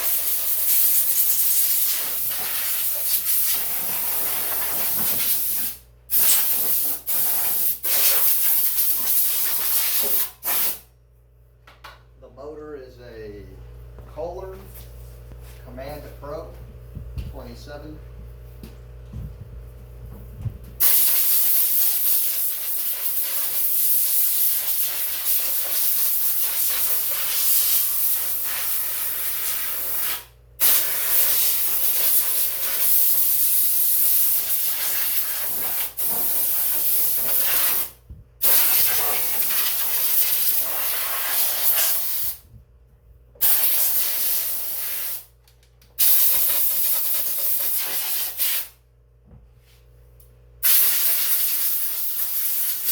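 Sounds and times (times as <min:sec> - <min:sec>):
air blow gun hissing: 0:20.8 - 0:42.4, 0:43.4 - 0:45.3, 0:50.6 - 0:52.9.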